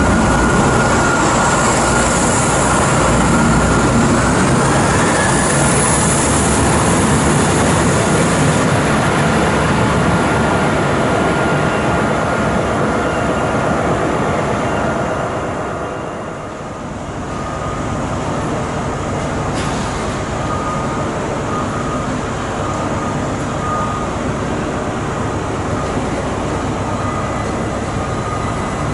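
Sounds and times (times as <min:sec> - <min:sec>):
train rumbling past: 0:00.0 - 0:28.9.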